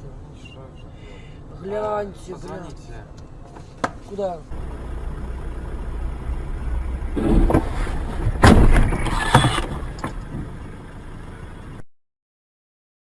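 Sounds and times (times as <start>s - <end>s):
car road rumble: 3.2s - 11.8s
car crash bangs and crunching: 7.1s - 10.3s.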